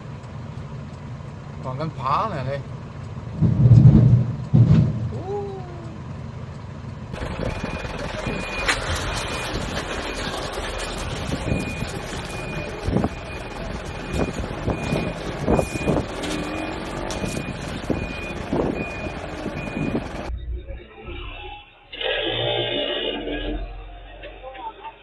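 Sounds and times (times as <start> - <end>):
truck engine running: 0.0 - 25.0
truck reversing alarm beeping: 6.0 - 25.0.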